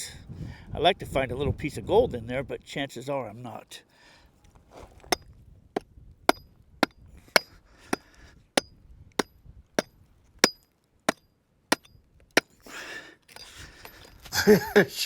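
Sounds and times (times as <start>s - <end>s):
metal tool striking hard ground: 5.1s - 12.7s.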